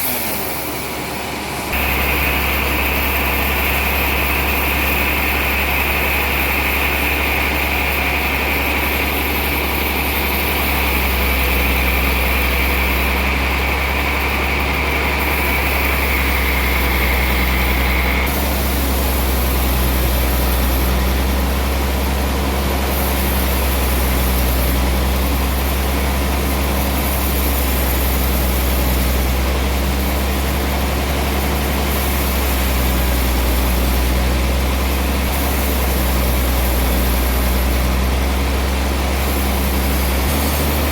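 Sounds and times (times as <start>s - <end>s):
saw whining through log: 0.0s - 40.9s
sawmill machinery humming: 0.0s - 40.9s.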